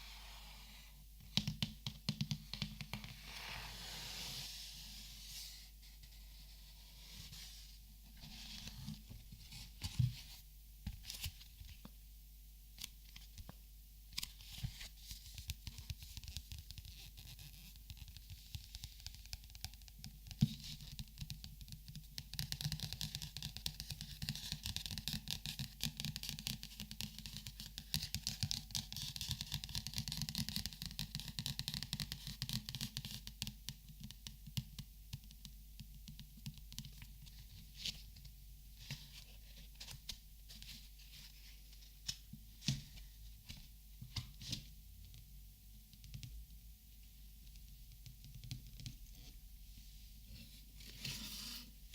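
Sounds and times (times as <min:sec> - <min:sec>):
marker clicks and taps: 0:01.3 - 0:03.0.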